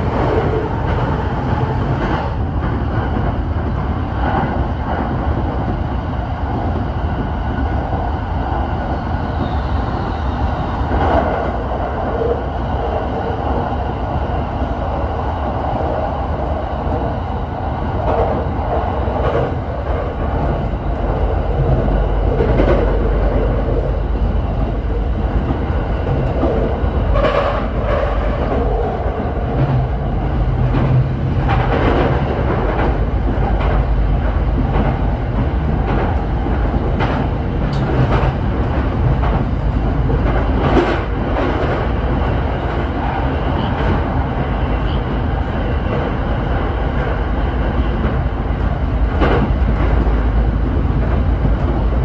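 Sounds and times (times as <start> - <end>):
electric train rolling noise: 0.0 - 52.0
train clicks: 17.9 - 23.9, 24.6 - 45.2, 45.8 - 52.0.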